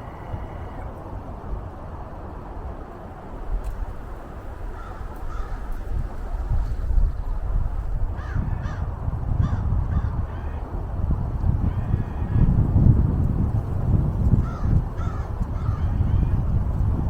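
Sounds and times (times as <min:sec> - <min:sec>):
wind rumbling on microphone: 0:00.0 - 0:17.0
bird calling: 0:03.6 - 0:06.5.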